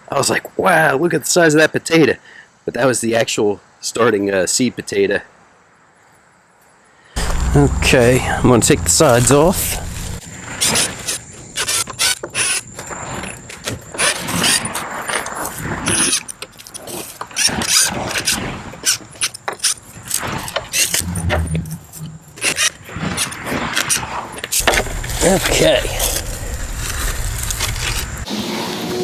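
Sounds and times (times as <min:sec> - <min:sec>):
soil rustling and scraping: 0:07.2 - 0:28.3.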